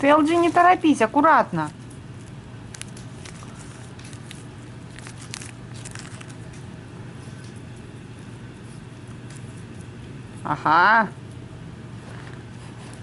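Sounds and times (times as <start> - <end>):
steady low hum: 0.0 - 13.0
cat chewing crunchy catnip: 1.6 - 10.4.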